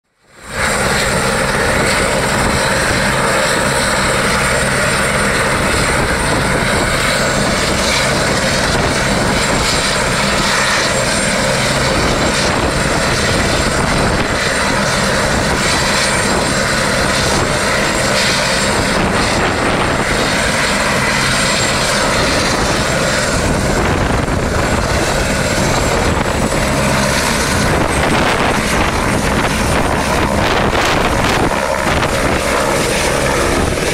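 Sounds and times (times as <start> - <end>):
helicopter rotor and turbine: 0.0 - 33.9.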